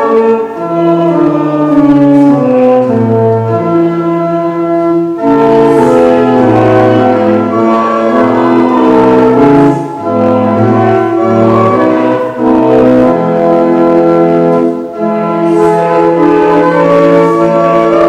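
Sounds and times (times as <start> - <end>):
church organ chords: 0.0 - 18.0.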